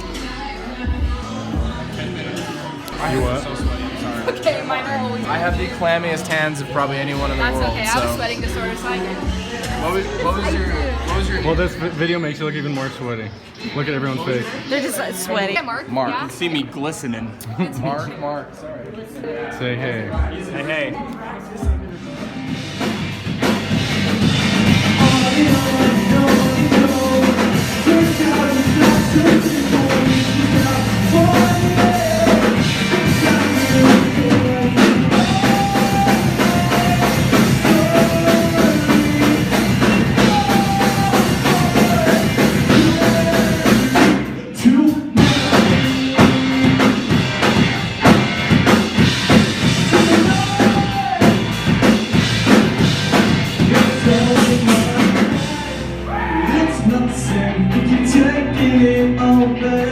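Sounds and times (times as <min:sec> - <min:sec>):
live rock band playing: 0:02.9 - 0:11.8, 0:21.7 - 0:59.9.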